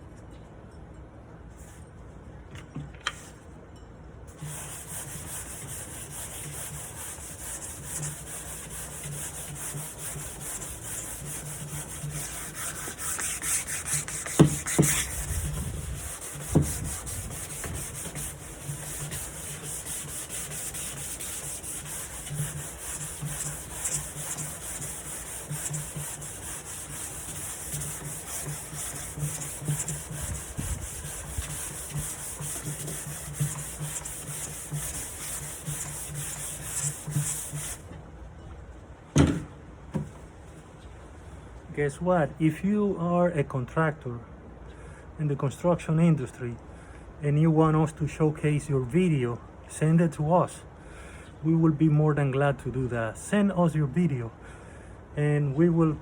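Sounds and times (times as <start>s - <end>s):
sanding wood: 4.3s - 37.9s.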